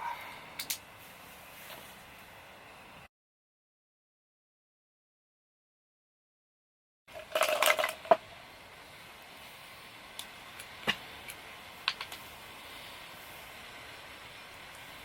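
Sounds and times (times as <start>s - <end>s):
wood fire crackling: 0.6s - 2.3s, 7.1s - 15.0s.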